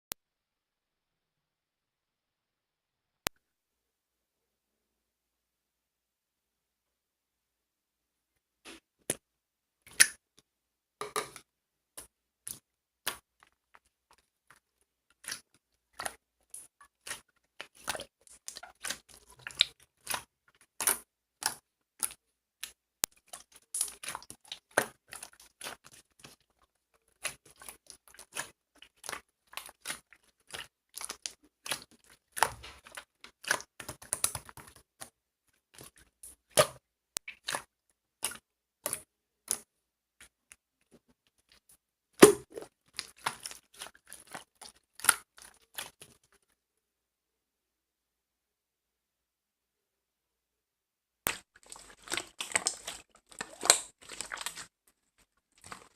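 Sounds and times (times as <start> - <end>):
slime air bubbles popping: 42.2 - 42.7.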